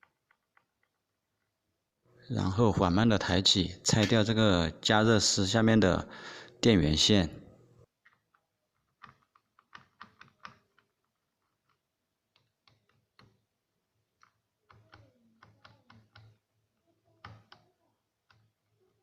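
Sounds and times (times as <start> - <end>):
faint clicks and plastic knocks: 0.0 - 1.6, 7.9 - 19.0.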